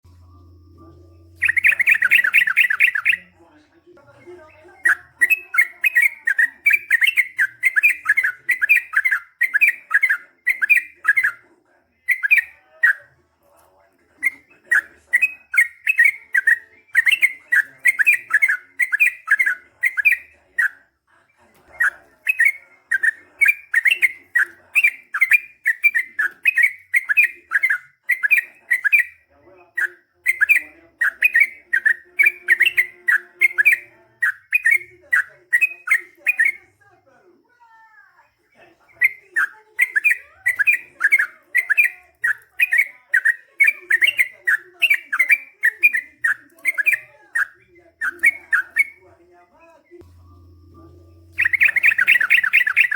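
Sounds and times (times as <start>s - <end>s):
bird singing chirping runs: 0.5s - 3.3s, 50.0s - 52.9s.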